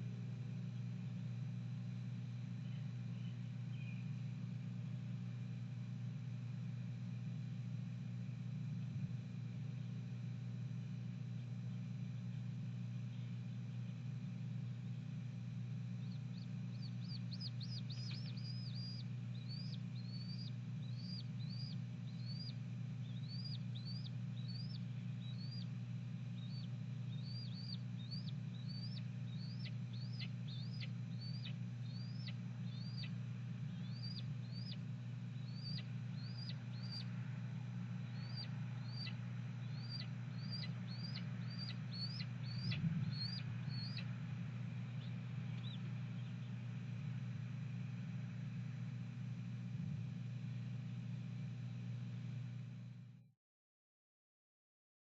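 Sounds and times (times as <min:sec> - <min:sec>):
steady low hum: 0:00.0 - 0:53.2
hawk chirping calls: 0:16.0 - 0:25.7, 0:26.4 - 0:33.1, 0:33.7 - 0:34.8, 0:35.4 - 0:37.1, 0:38.0 - 0:44.1, 0:45.0 - 0:46.4.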